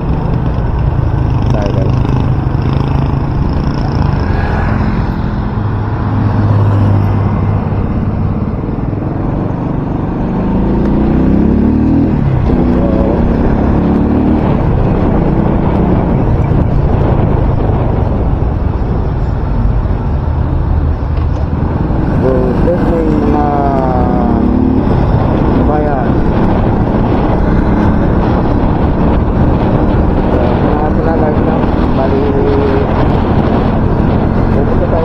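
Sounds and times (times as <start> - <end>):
vehicle engine: 0.0 - 35.0
wind rushing over microphone: 0.0 - 35.0.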